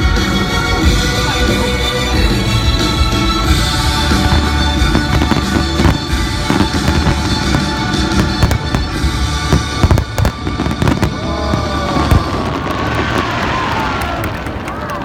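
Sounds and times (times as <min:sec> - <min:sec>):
music from loudspeakers: 0:00.0 - 0:11.2
fireworks bangs and crackles: 0:00.0 - 0:15.0.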